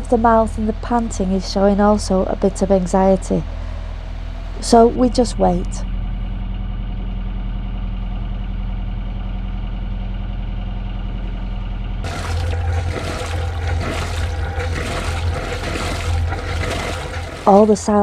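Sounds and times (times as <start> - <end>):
boat engine idling: 0.0 - 6.4, 12.0 - 18.0.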